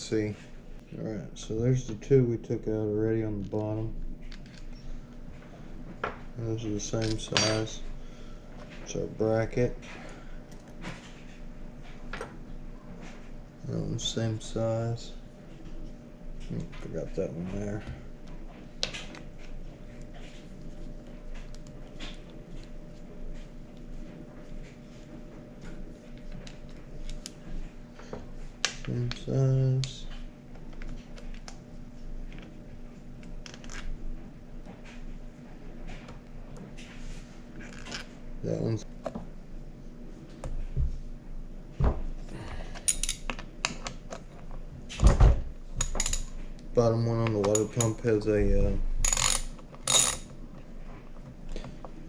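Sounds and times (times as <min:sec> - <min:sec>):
steady hum: 0:00.0 - 0:52.0
bolts and hand tools clinking: 0:07.0 - 0:07.8.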